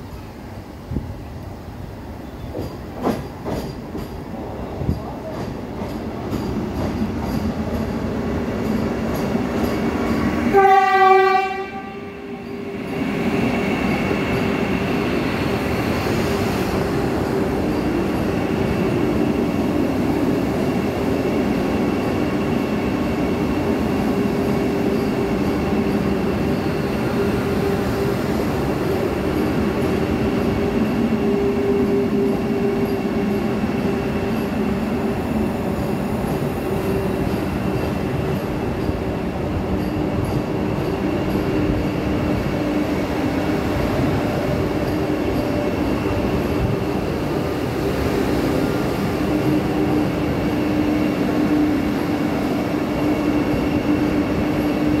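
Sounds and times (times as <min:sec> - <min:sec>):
train coaches passing: 0:00.0 - 0:55.0
train horn blast: 0:10.5 - 0:12.4.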